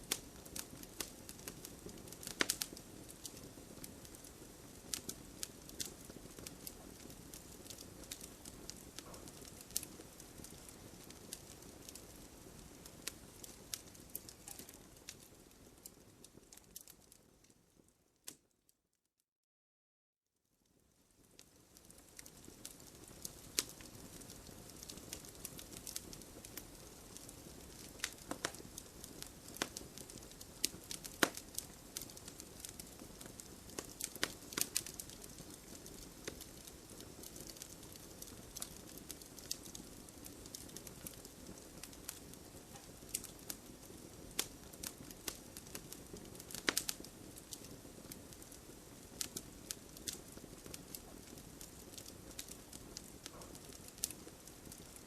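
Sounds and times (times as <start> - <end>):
campfire crackling and popping: 0.0 - 18.4, 21.0 - 55.0.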